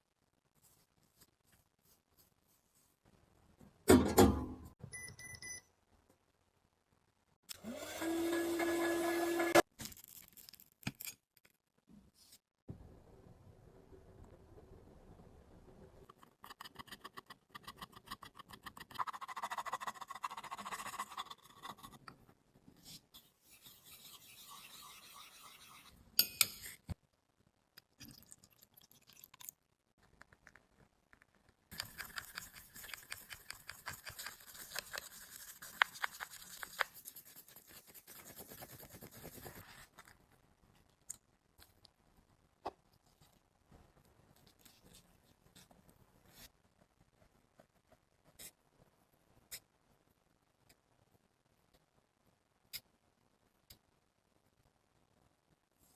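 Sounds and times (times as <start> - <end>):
tool scraping makeup powder: 31.7 - 39.6.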